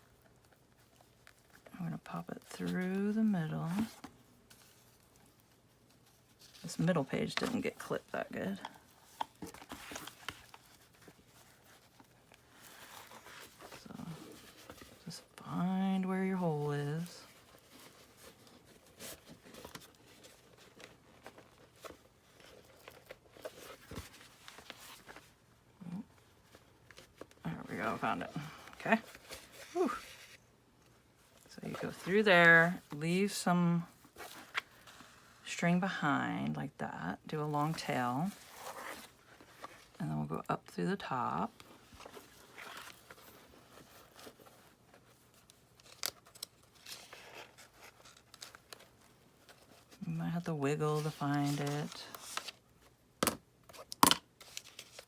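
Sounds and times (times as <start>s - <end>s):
paper rustling: 0.0s - 25.4s, 26.1s - 30.4s, 41.5s - 50.0s, 50.9s - 53.0s, 53.7s - 55.0s.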